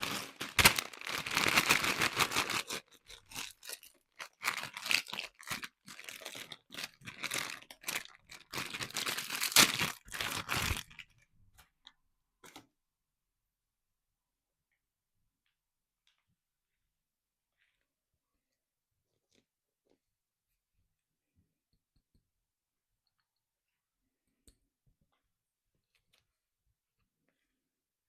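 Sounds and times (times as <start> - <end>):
plastic packaging tearing and crinkling: 0.0 - 11.1.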